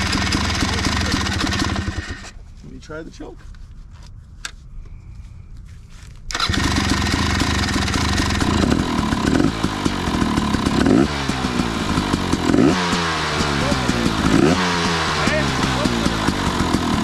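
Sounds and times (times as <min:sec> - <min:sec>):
dirt bike engine starting and revving: 0:00.0 - 0:02.4, 0:06.3 - 0:17.0.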